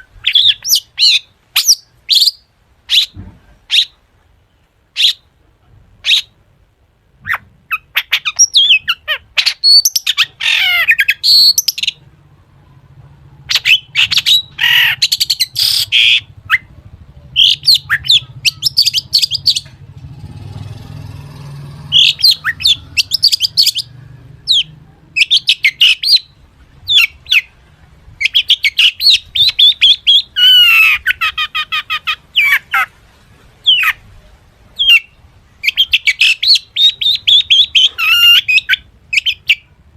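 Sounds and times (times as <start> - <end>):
shrike singing: 7.2 - 27.6.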